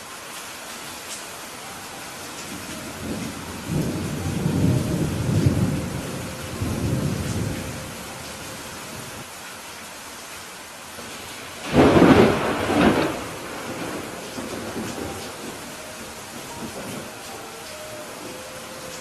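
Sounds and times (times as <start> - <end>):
steady rain falling: 0.0 - 19.0
thunder rumbling: 2.4 - 9.2, 11.1 - 19.0.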